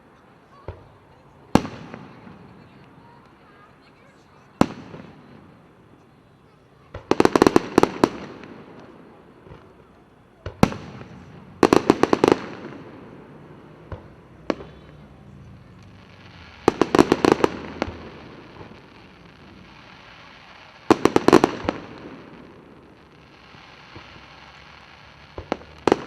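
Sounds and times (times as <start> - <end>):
rapid volleys of firework bangs: 0.3 - 26.0.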